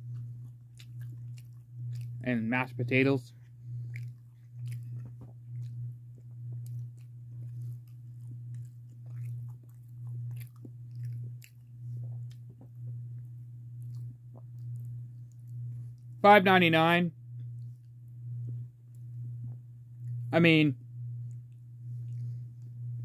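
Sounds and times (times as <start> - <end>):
person chewing food: 0.0 - 16.2, 21.2 - 22.8
wet mouth clicks: 0.1 - 2.2, 3.7 - 5.9.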